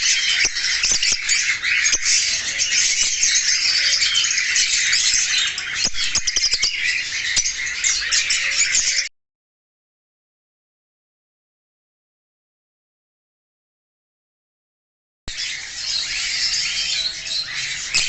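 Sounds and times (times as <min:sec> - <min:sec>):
parrots chattering and squawking: 0:00.0 - 0:09.1, 0:15.3 - 0:18.0.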